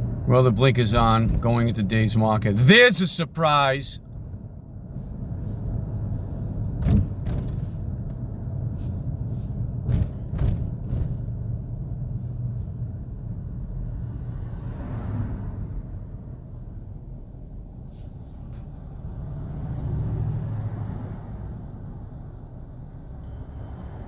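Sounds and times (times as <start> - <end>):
vehicle engine rumbling: 0.0 - 24.0
sharp knocks and clicks: 6.8 - 7.8.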